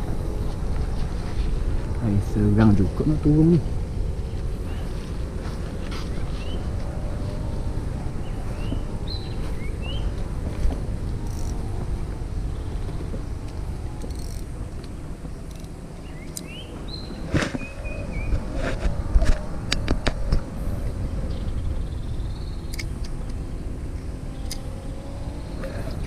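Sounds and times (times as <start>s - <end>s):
wind rumble on microphone: 0.0s - 26.0s
fishing reel clicks: 11.2s - 11.6s, 14.0s - 14.5s.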